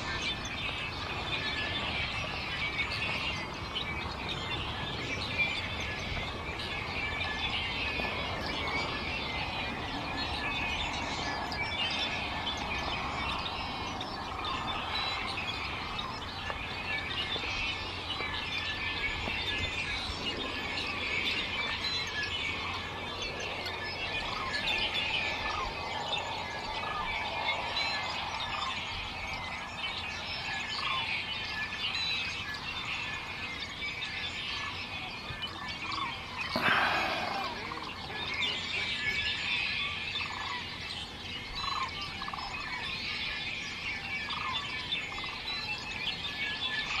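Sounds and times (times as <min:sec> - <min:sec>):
birds chirping and twittering: 0:00.0 - 0:47.0
loud bird call: 0:35.9 - 0:39.4.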